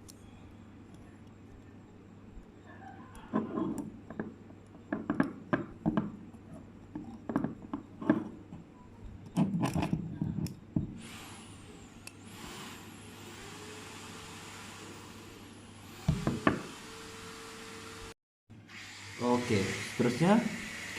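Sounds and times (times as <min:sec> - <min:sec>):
small metal clicks and scraping: 0:03.1 - 0:05.4, 0:06.4 - 0:10.6.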